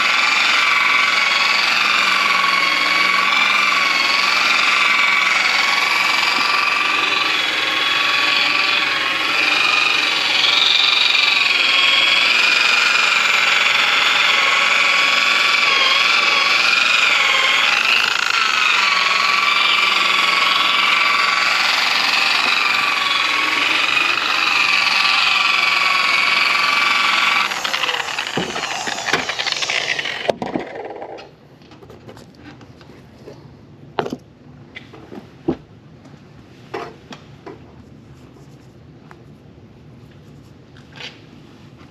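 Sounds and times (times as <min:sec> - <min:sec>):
power tool motor whining: 0:00.0 - 0:30.8.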